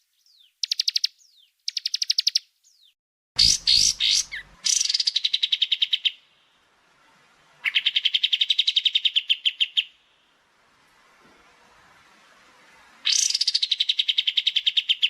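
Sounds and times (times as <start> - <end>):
songbird trilling: 0.2 - 6.3, 7.6 - 10.0, 13.0 - 15.0.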